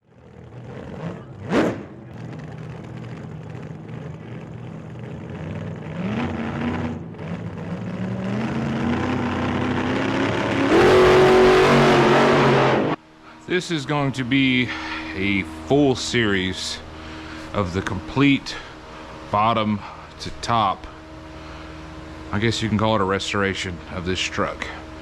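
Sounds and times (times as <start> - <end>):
vehicle engine speeding up: 0.0 - 13.0
loud rushing noise: 10.3 - 13.0.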